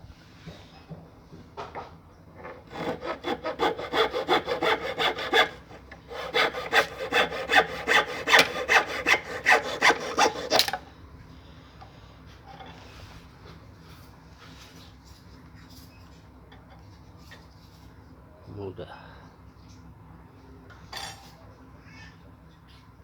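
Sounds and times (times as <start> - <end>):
hacksaw cutting through wood: 2.6 - 10.8.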